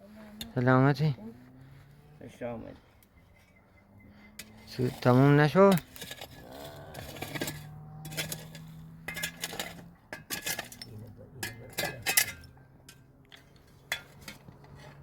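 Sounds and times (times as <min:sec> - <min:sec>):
small hard objects clinking: 0:04.3 - 0:14.7.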